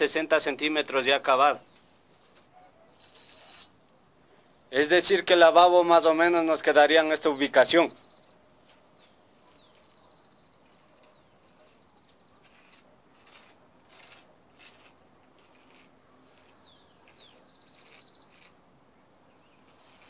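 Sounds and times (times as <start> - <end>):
faint birds chirping: 1.1 - 4.7, 7.2 - 13.5, 14.6 - 20.0
faint short scratches: 1.7 - 3.8, 8.6 - 18.6, 19.4 - 20.0.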